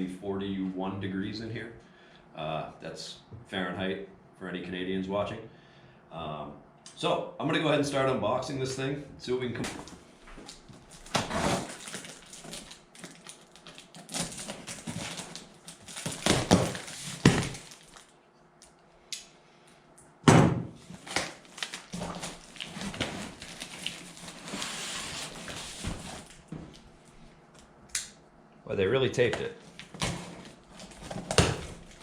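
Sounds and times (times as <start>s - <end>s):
loud thump: 20.3s - 20.7s
cardboard box scraping and rustling: 24.2s - 26.3s.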